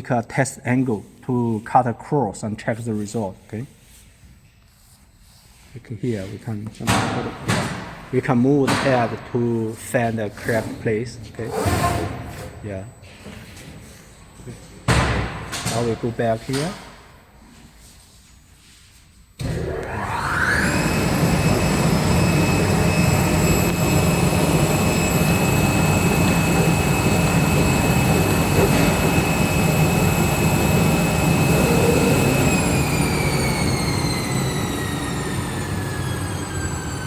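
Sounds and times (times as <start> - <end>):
cnc cutter motor whine: 19.4 - 37.0
low hum: 19.6 - 37.0.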